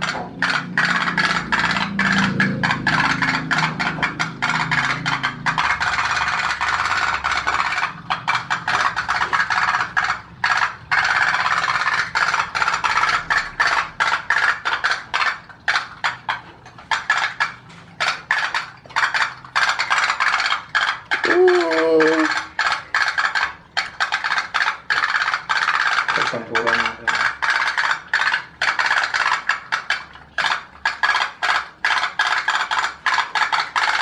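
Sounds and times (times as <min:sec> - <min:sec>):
toy boat engines popping: 0:00.0 - 0:34.0.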